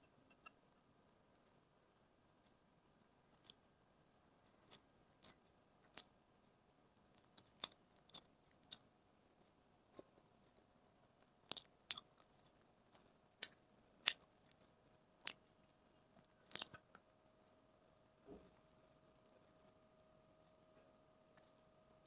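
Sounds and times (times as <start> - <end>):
chewing mouth clicks: 4.6 - 6.1, 11.5 - 15.4, 16.5 - 17.0.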